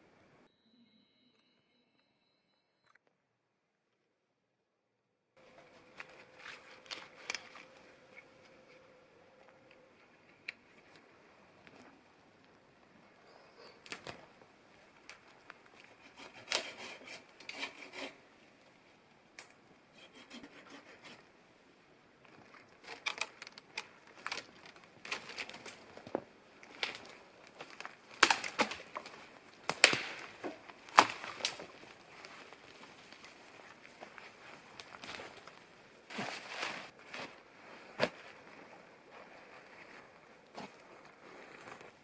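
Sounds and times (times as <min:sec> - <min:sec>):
dry wood cracking and snapping: 0:06.1 - 0:07.8, 0:13.8 - 0:14.2, 0:22.8 - 0:35.7.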